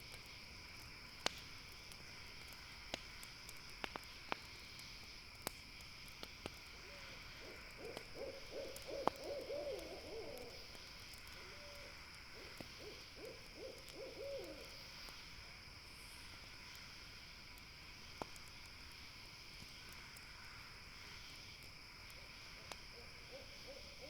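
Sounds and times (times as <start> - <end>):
campfire crackling: 0.0 - 24.0
owl hooting: 6.8 - 10.7, 11.4 - 14.7, 23.0 - 24.0.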